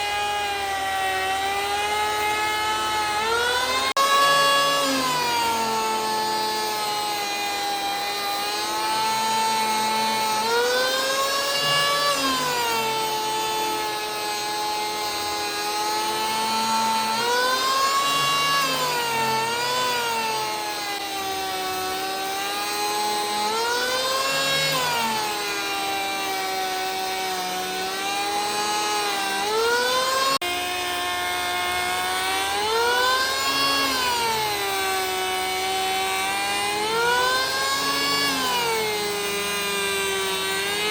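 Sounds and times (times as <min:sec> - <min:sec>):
power tool motor whining: 0:00.0 - 0:40.9.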